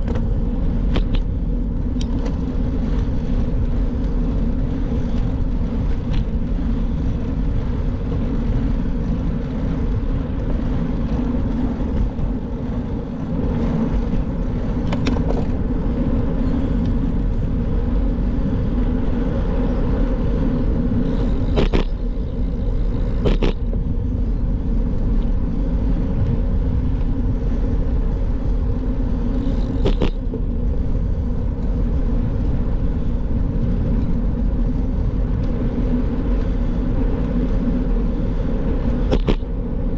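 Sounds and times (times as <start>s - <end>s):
bike rumbling on the move: 0.0s - 39.9s
sharp clicks or knocks: 39.1s - 39.4s.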